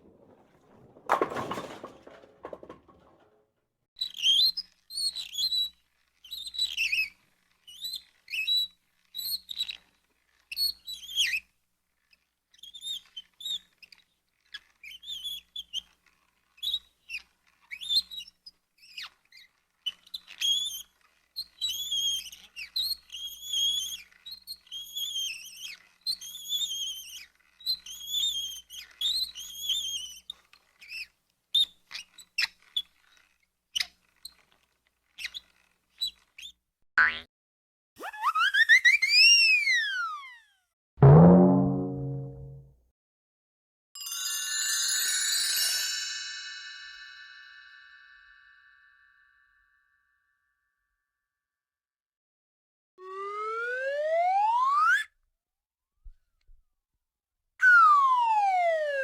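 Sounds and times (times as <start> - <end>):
cart wheels squeaking: 0.0 - 3.4.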